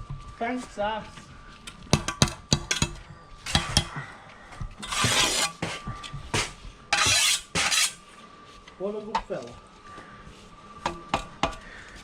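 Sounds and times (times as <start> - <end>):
trowel scraping mortar: 4.8 - 5.8, 6.4 - 8.0.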